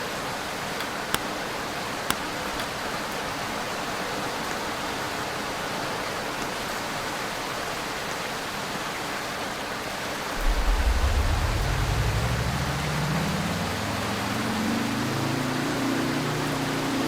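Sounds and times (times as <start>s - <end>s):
ceiling fan whooshing: 10.4s - 15.7s
low hum rising in pitch: 10.4s - 17.0s.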